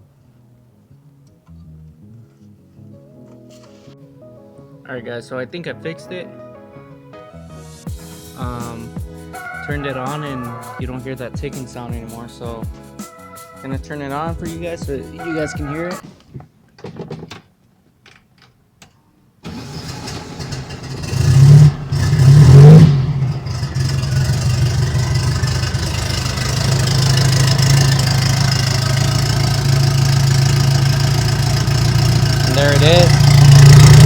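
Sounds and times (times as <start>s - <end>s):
car engine cranking and starting: 19.4s - 34.0s
car engine idling: 19.5s - 34.0s
car engine revving: 19.5s - 34.0s.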